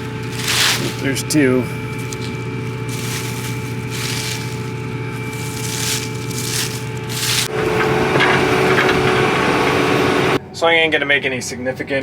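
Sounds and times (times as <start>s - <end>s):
combine harvester hum: 0.0s - 10.5s.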